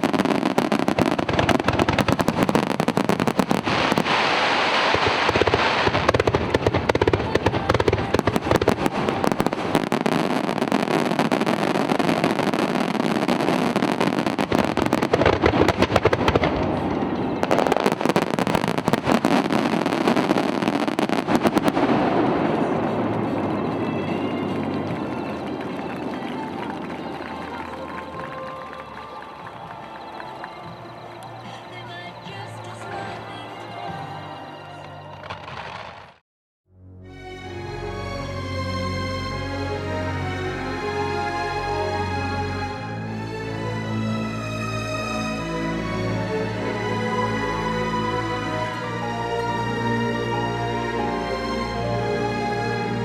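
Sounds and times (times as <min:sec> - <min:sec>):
fireworks bangs and crackling: 0:00.0 - 0:36.2.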